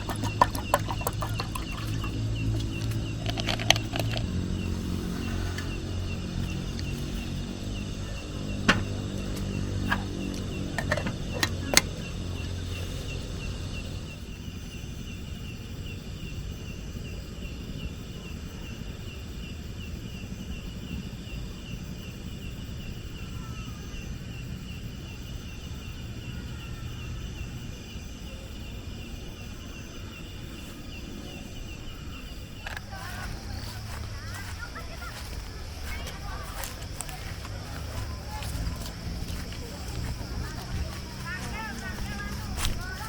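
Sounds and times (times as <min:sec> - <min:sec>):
low wind rumble: 0:00.0 - 0:23.2, 0:27.0 - 0:43.0.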